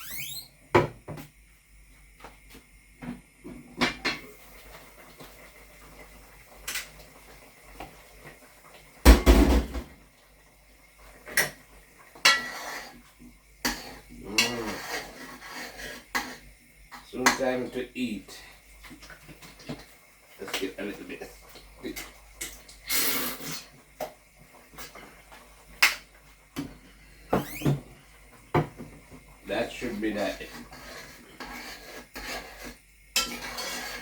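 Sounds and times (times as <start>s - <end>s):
pots and utensils clattering: 3.5s - 5.5s, 9.0s - 10.0s, 11.2s - 17.8s, 18.8s - 34.0s.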